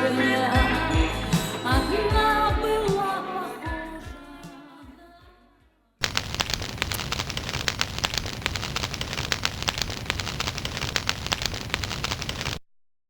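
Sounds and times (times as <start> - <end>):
wood fire crackling: 6.0 - 12.6.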